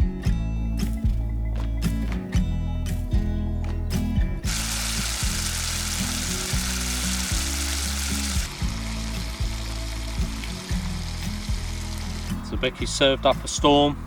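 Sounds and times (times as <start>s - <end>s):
music with plucked bass line: 0.0s - 14.0s
food sizzling over fire: 4.5s - 12.3s.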